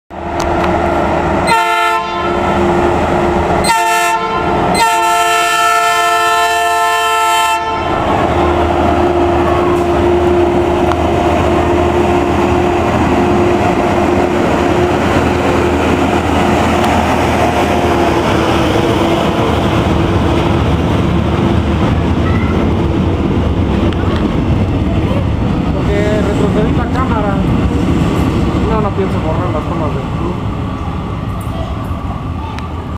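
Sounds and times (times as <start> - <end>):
train rumble: 0.1 - 32.9
train horn blasts: 1.4 - 2.5, 3.6 - 8.1.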